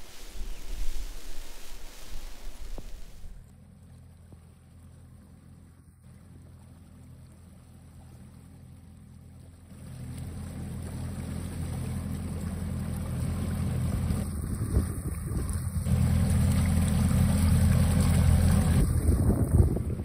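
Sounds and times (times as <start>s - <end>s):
water and wind rushing: 0.0s - 3.5s, 9.7s - 20.0s
outboard motor running: 2.6s - 20.0s.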